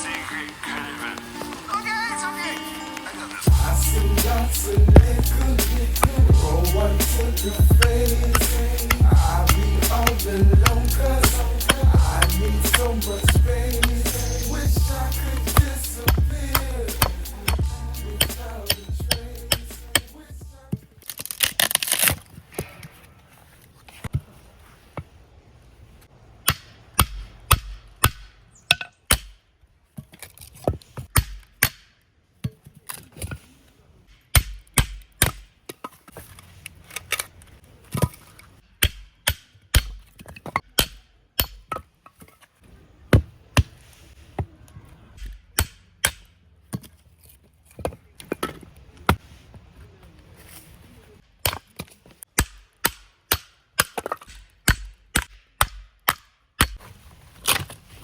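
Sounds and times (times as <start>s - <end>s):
hatchet chopping firewood: 26.4s - 29.4s, 30.1s - 33.4s, 34.2s - 35.5s, 38.8s - 42.0s, 43.1s - 43.8s, 45.2s - 47.0s, 51.4s - 56.9s.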